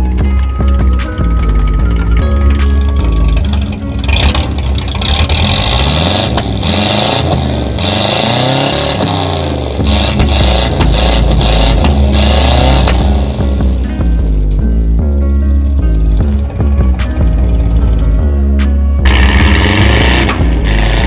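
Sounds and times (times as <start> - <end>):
engine revving: 0.0 - 21.0.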